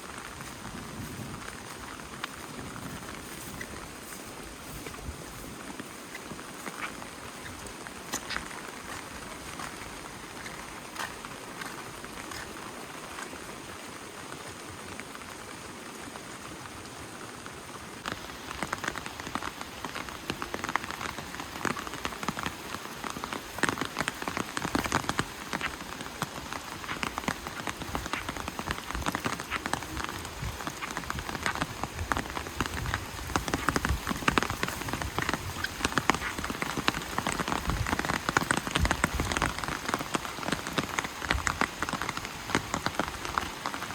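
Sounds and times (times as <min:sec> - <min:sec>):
rain falling: 0:00.0 - 0:43.9
raindrops pattering: 0:00.0 - 0:43.9.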